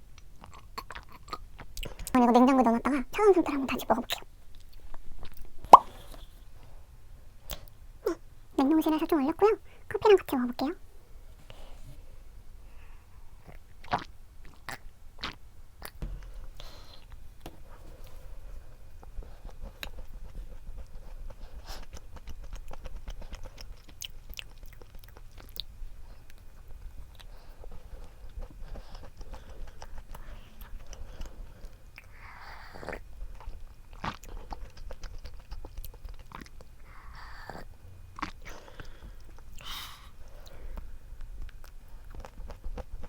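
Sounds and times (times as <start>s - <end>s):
chewing crunchy snack: 0.1s - 2.4s, 19.0s - 40.0s, 41.2s - 43.0s.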